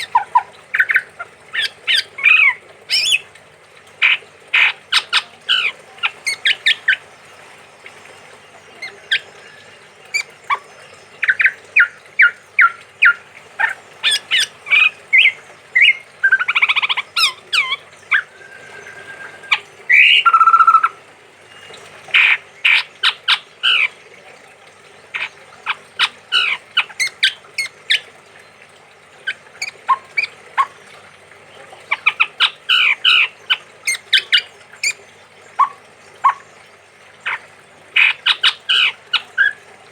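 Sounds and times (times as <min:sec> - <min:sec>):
harsh buzzy bird call: 0:08.8 - 0:21.1
bird whistled notes: 0:17.2 - 0:21.0.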